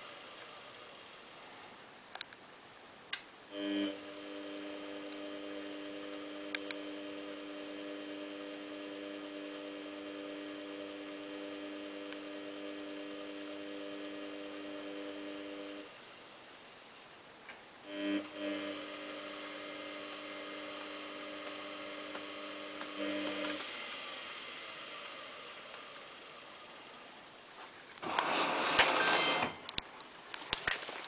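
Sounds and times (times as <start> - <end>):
click: 2.1 - 3.3, 6.5 - 6.8, 12.1 - 12.3
washing machine electrical hum: 3.4 - 30.3.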